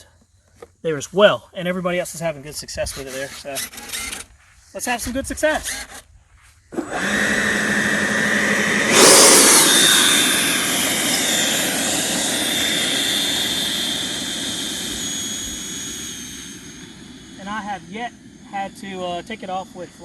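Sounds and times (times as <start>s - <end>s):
electric ducted fans whining: 6.7s - 20.0s
rush of air: 8.8s - 13.7s.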